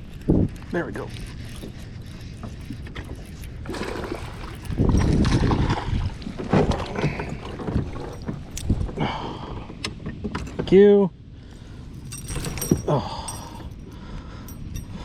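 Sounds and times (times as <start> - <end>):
water splashing around kayak: 1.1 - 10.7.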